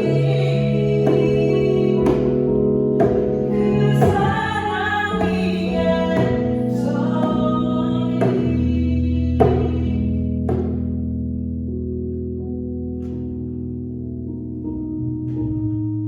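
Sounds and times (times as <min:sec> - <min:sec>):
person singing worship song: 0:00.0 - 0:10.5
held accompaniment chords: 0:00.0 - 0:16.0.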